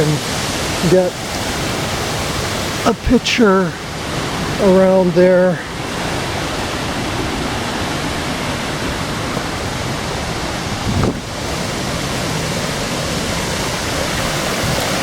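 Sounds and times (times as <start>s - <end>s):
brief low thump: 10.9s - 11.3s.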